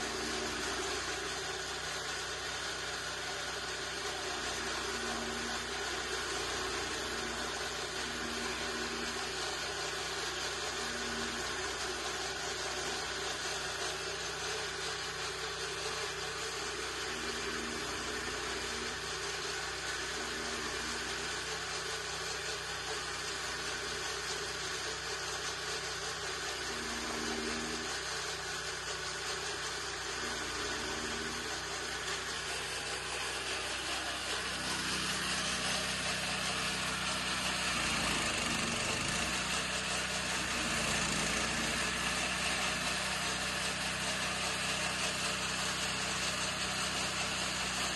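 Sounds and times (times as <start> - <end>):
chaff cutter running: 0.0 - 47.9.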